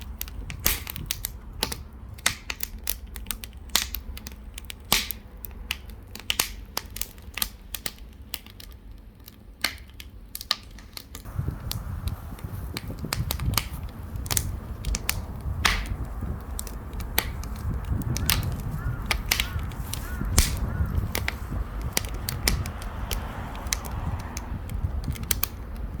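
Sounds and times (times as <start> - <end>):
wood fire crackling and popping: 0.0 - 26.0
low rumble: 11.3 - 26.0.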